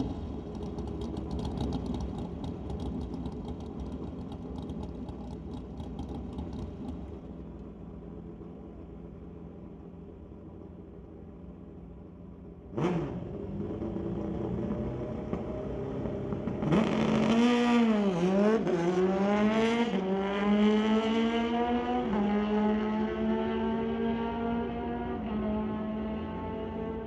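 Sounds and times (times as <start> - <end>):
motorcycle engine revving with gear shifts: 0.0 - 7.1, 12.6 - 27.0.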